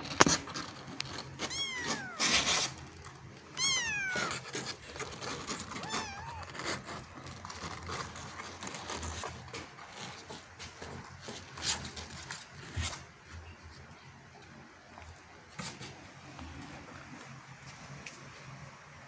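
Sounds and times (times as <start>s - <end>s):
kitten meowing: 1.4s - 2.7s, 3.5s - 4.7s, 5.7s - 6.8s.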